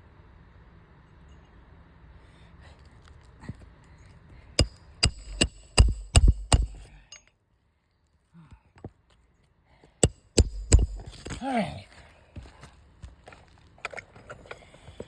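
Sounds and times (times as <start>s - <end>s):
hammer striking nails: 4.6s - 7.2s, 10.0s - 11.4s.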